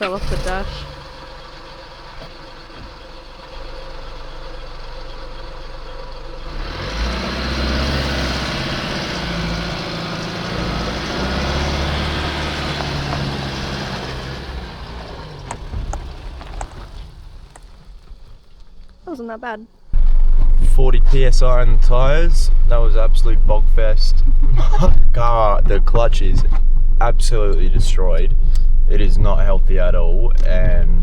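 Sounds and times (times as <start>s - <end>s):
car engine working hard: 0.0s - 19.0s, 19.9s - 31.0s
sharp clicks and knocks: 15.4s - 19.0s.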